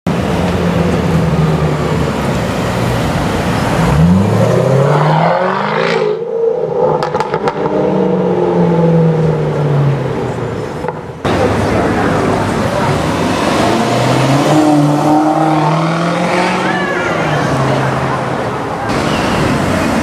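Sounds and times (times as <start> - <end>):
car engine revving: 0.1 - 20.0.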